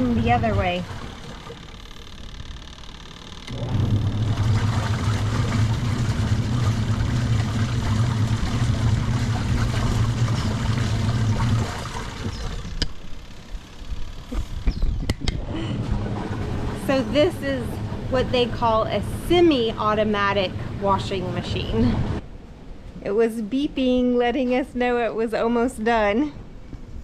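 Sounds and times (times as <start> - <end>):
washing machine motor humming: 0.0 - 22.2.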